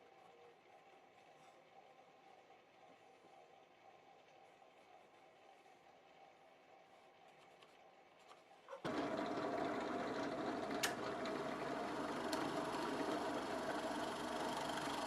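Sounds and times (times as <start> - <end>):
electric power tool running: 8.9 - 15.0.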